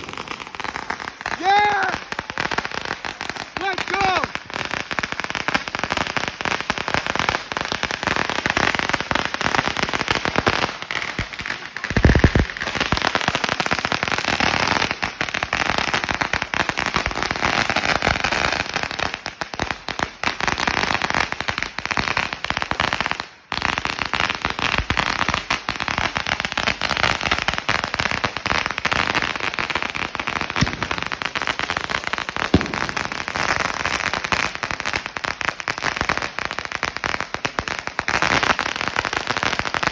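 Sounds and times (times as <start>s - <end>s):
firecrackers popping rapidly: 0.0s - 39.9s
loud firecracker bang: 30.6s - 31.3s, 32.4s - 33.5s.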